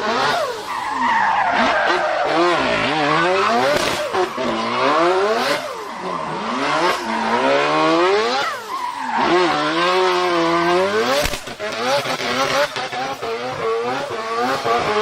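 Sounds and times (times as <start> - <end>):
tyres sliding and squealing: 0.0 - 11.2
car engine revving hard: 0.0 - 15.0.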